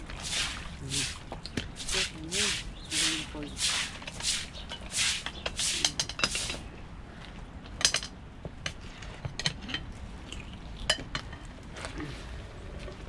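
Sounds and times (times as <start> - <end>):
utensil scraping pot: 0.0 - 6.7.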